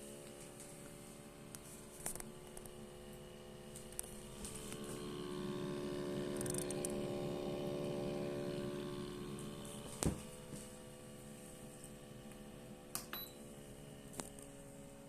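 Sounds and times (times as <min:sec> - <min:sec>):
humidifier buzzing hum: 0:00.0 - 0:15.0.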